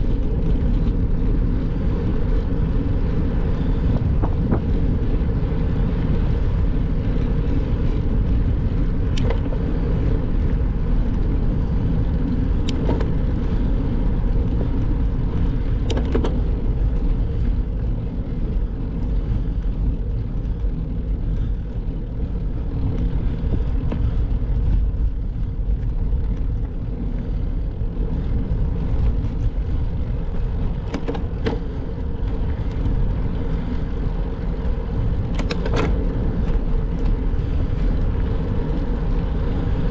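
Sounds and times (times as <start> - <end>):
bicycle road noise: 0.0 - 39.9
wind: 0.0 - 39.9
sharp clicks or rattles: 35.2 - 37.1.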